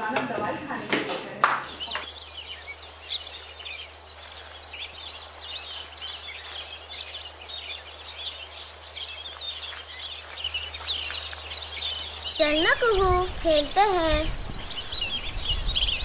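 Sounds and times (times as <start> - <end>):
small birds chirping: 0.0 - 16.0
low hum: 12.3 - 16.0.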